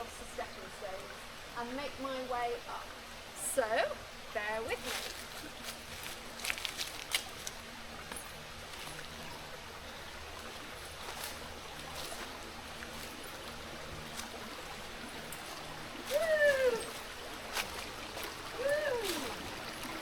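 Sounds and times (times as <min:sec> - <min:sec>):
stream running over rocks: 0:00.0 - 0:20.0
rising and falling animal call: 0:16.1 - 0:17.0.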